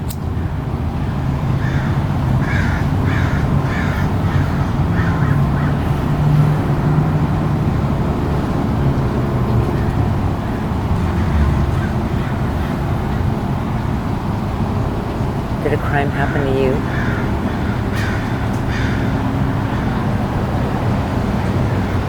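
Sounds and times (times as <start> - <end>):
crow cawing: 1.6 - 5.8, 11.7 - 12.8, 16.8 - 20.0.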